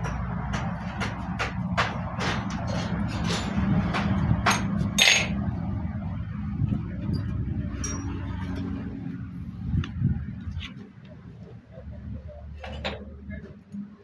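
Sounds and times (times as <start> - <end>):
metal tools clinking: 5.0 - 5.4, 7.8 - 8.3.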